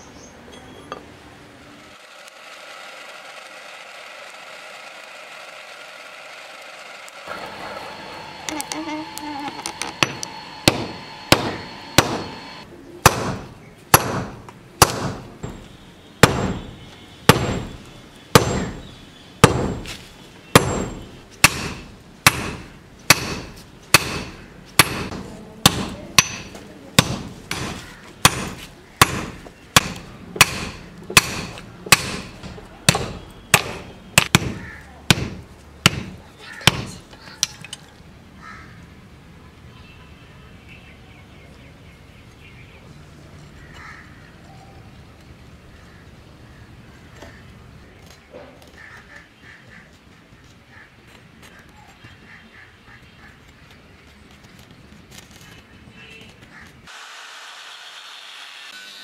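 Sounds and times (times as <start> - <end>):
hammer clanging on steel: 9.6 - 13.4, 20.6 - 37.9.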